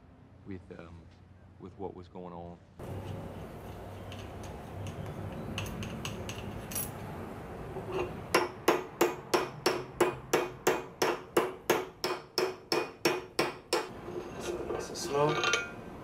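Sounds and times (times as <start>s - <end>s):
hammer striking metal: 8.3s - 14.0s.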